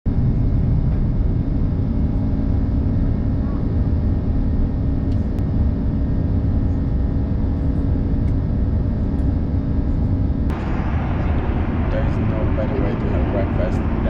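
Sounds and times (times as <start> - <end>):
airliner engines rumbling: 0.1 - 14.0
faint steady tones: 10.5 - 14.0.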